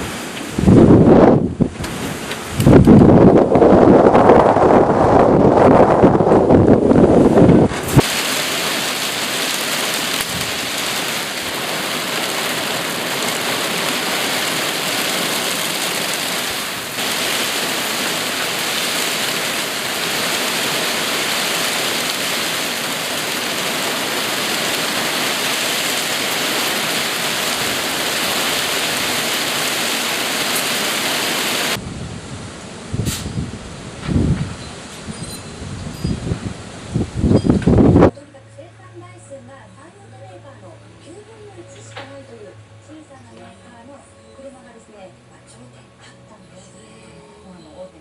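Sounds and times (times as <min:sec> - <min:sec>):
heavy rain pouring: 0:00.0 - 0:34.4.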